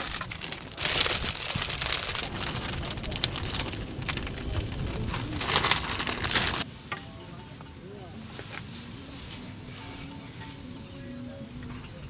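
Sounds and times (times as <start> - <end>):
strong wind gusting: 0.0 - 6.6
wind buffeting microphone: 0.0 - 6.6.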